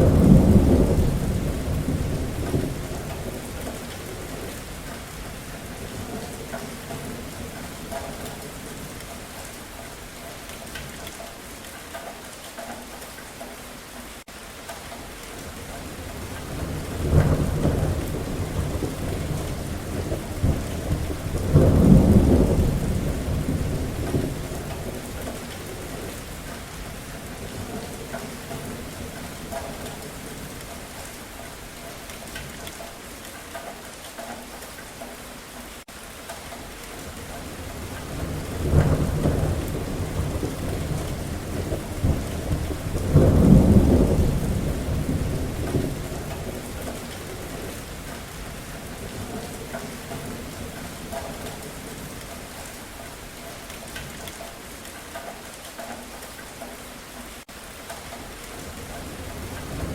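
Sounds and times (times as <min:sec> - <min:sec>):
thunder rolling: 0:00.0 - 0:09.0, 0:15.8 - 0:30.6, 0:37.0 - 0:52.6, 0:58.6 - 0:59.9
steady rain falling: 0:00.0 - 0:59.9.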